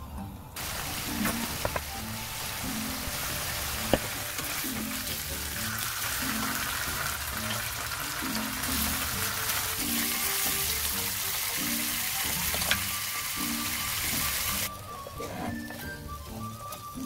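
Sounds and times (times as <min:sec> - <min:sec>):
chicken sizzling in oil: 0:00.6 - 0:17.0.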